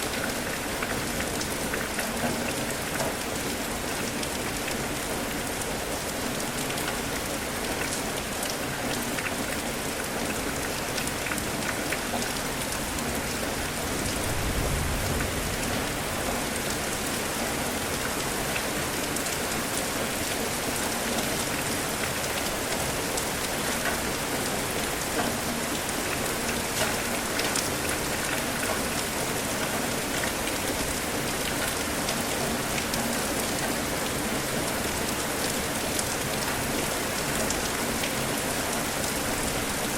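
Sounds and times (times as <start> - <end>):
rain drops ticking on a surface: 0.0 - 39.9.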